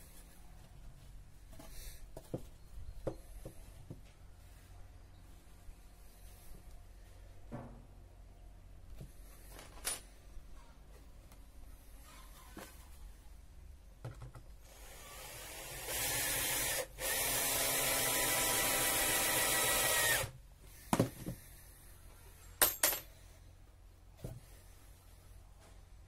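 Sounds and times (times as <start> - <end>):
electric drill running: 14.6 - 20.3.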